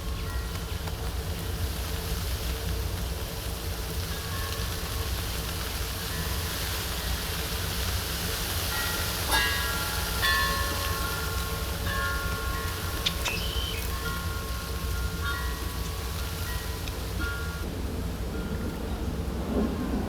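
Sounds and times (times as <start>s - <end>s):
clear ringing tones: 9.3s - 17.6s.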